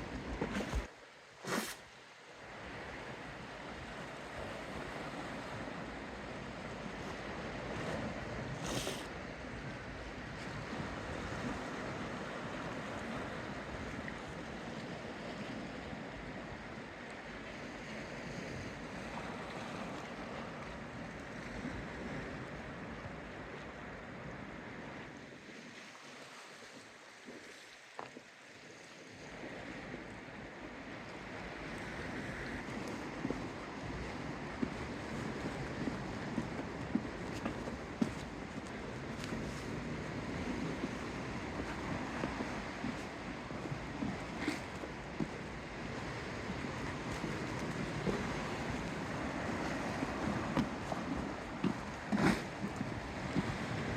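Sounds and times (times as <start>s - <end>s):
wind rumbling on microphone: 0.0s - 0.9s, 29.1s - 53.9s
sea water washing: 0.0s - 9.2s, 30.7s - 53.9s.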